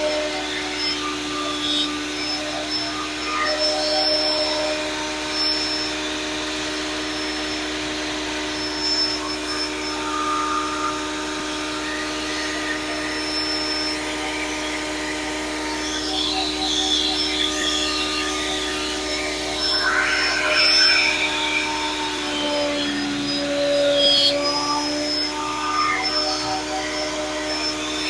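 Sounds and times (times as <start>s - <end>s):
planer motor humming: 0.0s - 28.0s.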